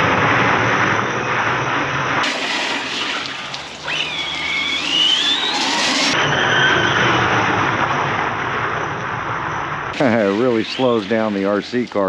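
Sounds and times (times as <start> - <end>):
electric motor whining: 2.2 - 6.2
water spray hissing: 10.0 - 12.0.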